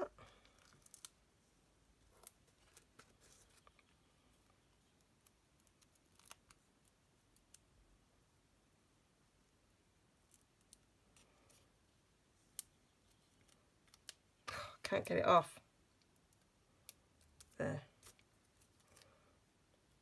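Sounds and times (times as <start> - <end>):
faint clicks and crinkles: 0.0 - 1.2, 2.0 - 7.8, 10.2 - 11.8, 12.5 - 15.2, 15.9 - 20.0.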